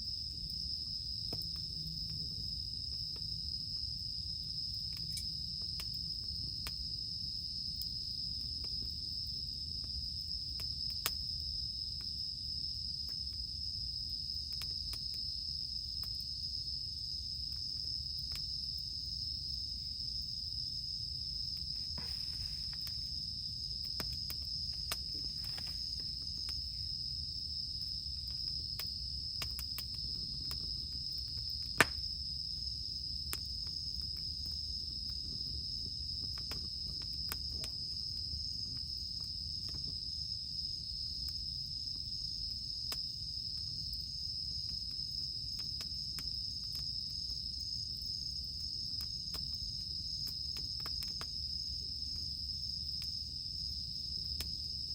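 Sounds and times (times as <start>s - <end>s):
insects chorus: 0.0s - 54.9s
fire popping and snapping: 0.1s - 40.1s, 44.6s - 53.2s
campfire wood crackling: 0.1s - 54.9s.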